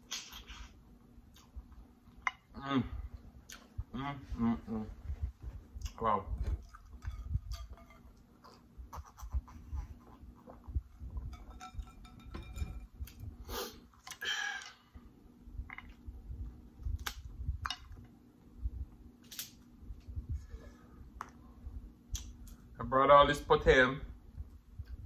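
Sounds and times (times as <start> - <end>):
close chewing and mouth noises: 0.0 - 2.4, 3.4 - 3.9, 5.3 - 11.4.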